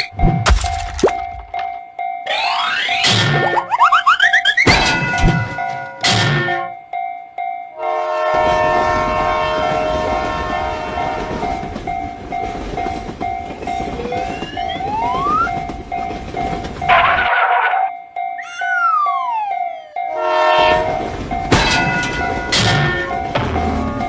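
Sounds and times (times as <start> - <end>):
railroad crossing bell dinging: 0.0 - 24.0
train passing with rumble: 7.7 - 24.0
train horn: 7.8 - 11.6, 20.1 - 21.2.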